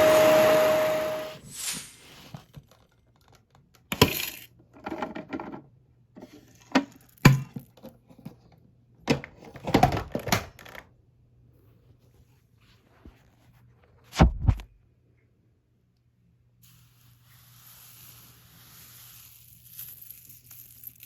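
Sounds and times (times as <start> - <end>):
plastic parts clicking and rattling: 2.5 - 5.6.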